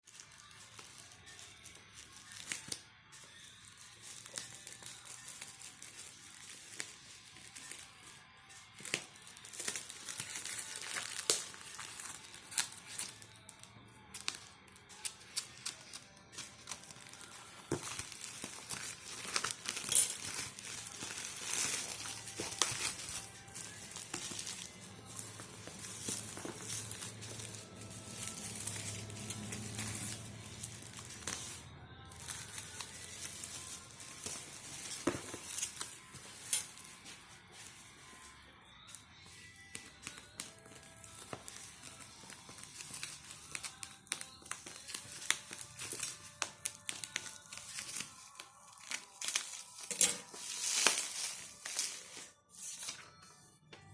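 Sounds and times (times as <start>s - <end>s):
background music: 0.0s - 53.9s
plastic packaging crinkling: 8.7s - 13.4s, 15.0s - 31.6s, 39.8s - 53.0s.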